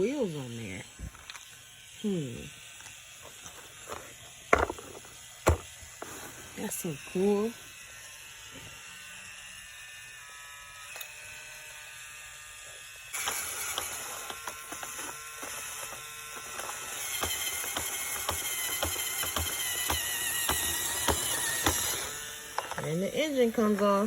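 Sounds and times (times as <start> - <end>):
toy drill motor whirring: 0.0 - 24.0
drill clicking: 13.2 - 23.0.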